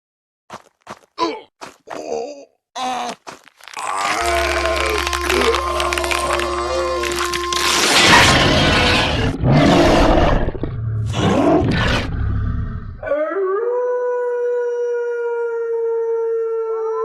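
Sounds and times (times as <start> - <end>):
monster roaring: 3.7 - 13.2
long steady monster howl: 3.8 - 10.5.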